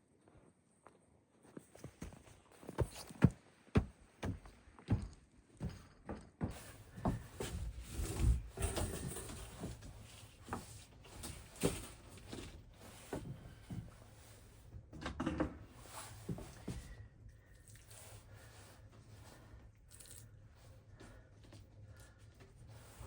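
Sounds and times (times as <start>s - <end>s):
objects knocking and scraping: 5.0s - 14.0s, 14.8s - 16.9s.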